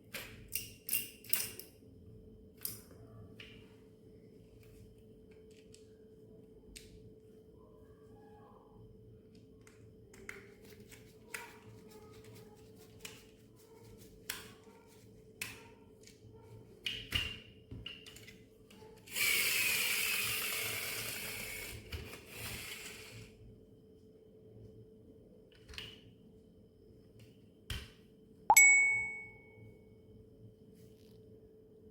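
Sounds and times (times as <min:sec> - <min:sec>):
small motor whirring: 0:19.1 - 0:23.3.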